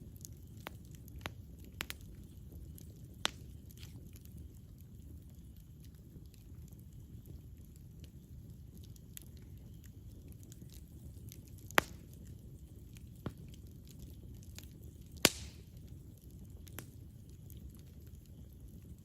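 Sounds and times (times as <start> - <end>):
campfire rumbling: 0.0 - 19.0
faint crackles: 0.0 - 19.0
loud sharp pops: 15.2 - 15.6.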